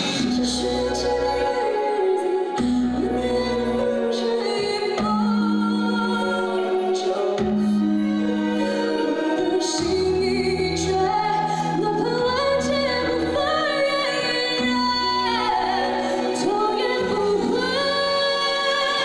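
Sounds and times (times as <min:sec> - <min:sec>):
instrumental accompaniment: 0:00.0 - 0:19.0
woman singing a ballad: 0:00.0 - 0:19.0.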